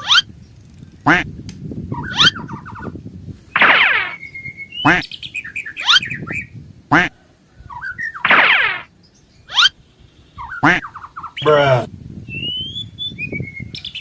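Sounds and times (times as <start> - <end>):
bird-like chirps and whistles: 1.9 - 2.9, 3.5 - 6.6, 7.6 - 11.4, 12.2 - 14.0.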